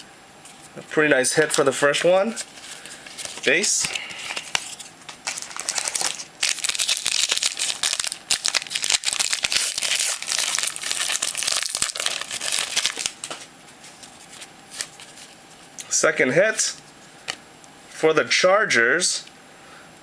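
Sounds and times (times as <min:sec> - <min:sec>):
card wrappers crinkling: 0:01.4 - 0:15.4.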